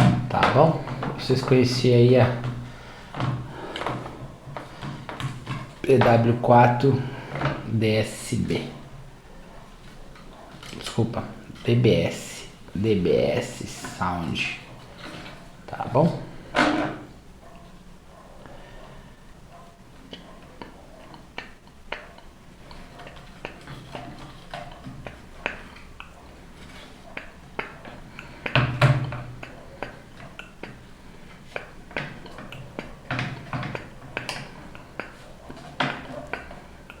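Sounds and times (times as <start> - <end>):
objects being handled clicking: 9.7 - 11.8, 20.0 - 37.0.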